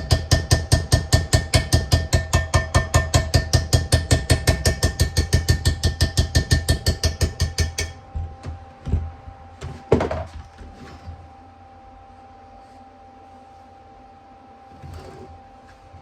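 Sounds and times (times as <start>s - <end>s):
hammer strikes on steel: 0.0s - 8.0s.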